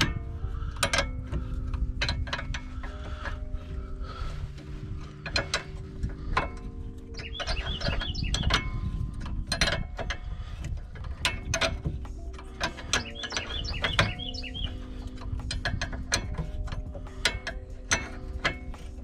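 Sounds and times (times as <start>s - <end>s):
ratchet wrench clicking: 5.0s - 19.0s.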